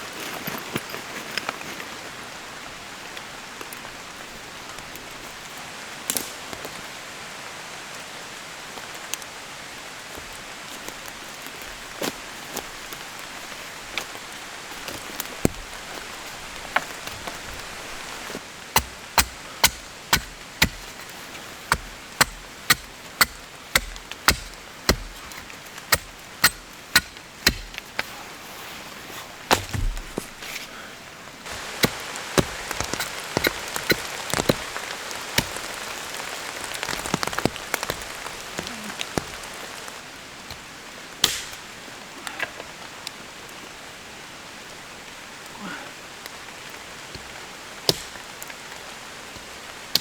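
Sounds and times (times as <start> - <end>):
steady rain: 1.0 - 50.0
wood being chopped: 18.3 - 28.1, 29.5 - 30.4, 31.4 - 35.9, 36.7 - 39.5, 41.2 - 41.6, 47.9 - 48.2, 49.4 - 50.0.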